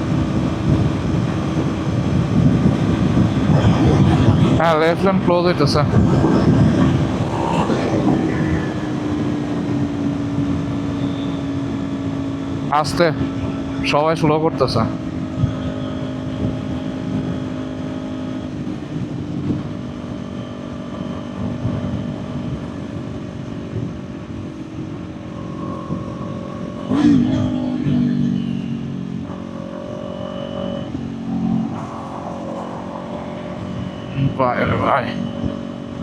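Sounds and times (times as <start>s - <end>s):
motorcycle engine revving: 0.0s - 13.9s, 24.0s - 36.0s
wind noise: 0.0s - 13.9s, 18.5s - 27.0s.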